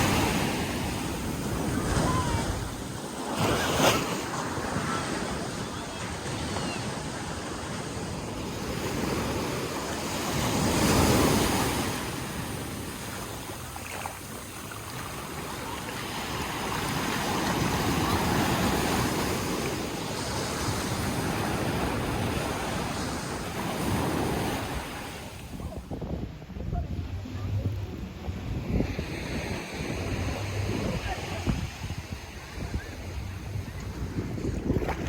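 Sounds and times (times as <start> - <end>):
surf breaking on a beach: 0.0 - 35.0
wind rumble on microphone: 21.4 - 35.0.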